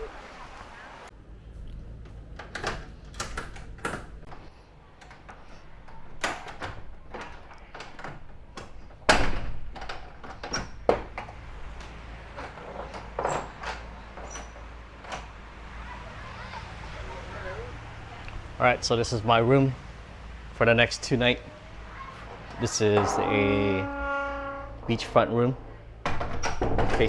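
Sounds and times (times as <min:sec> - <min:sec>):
door clicks and knocks: 0:05.9 - 0:15.3, 0:22.4 - 0:25.0, 0:26.0 - 0:27.0.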